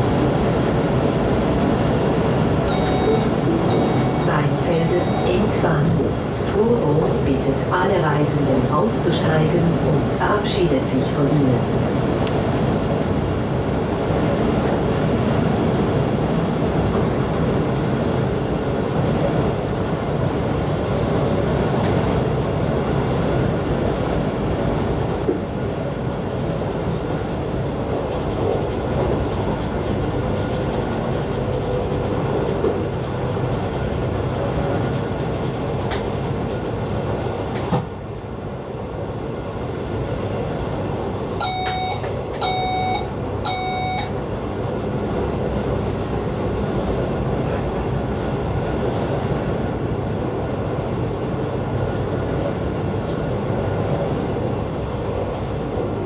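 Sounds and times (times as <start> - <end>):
train wheels rumbling on rails: 0.0 - 56.0
electronic beep: 2.7 - 5.4, 41.4 - 44.1.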